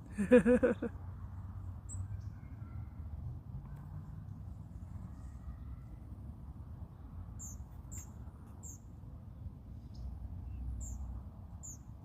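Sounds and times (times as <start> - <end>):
small bird chirping: 7.4 - 8.9, 9.8 - 11.9.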